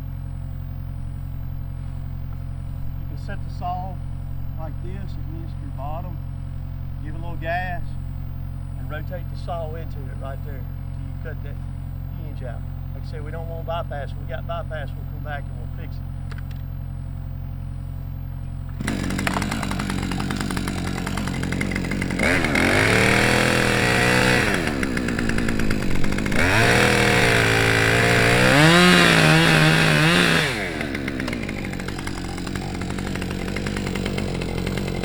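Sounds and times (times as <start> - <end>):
chainsaw idling and revving: 18.7 - 35.0.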